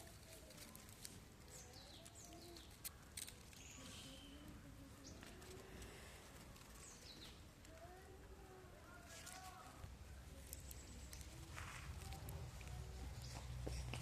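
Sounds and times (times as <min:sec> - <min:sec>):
faint bird chirps: 0:00.7 - 0:11.4.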